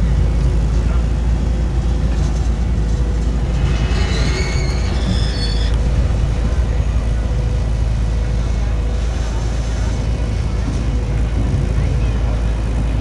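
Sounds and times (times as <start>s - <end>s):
miniature train cars rumbling on track: 0.0s - 13.0s
high squeaks: 3.4s - 8.3s.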